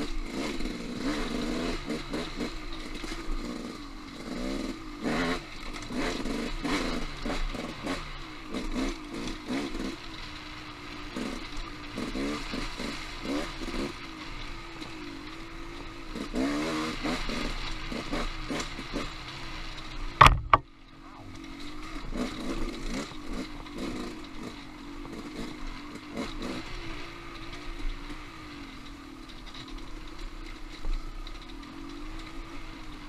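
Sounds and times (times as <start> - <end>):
dirt bike engine revving: 0.0 - 28.8
bike clattering over rough ground: 1.8 - 33.0
loud sharp knocks: 20.2 - 20.6.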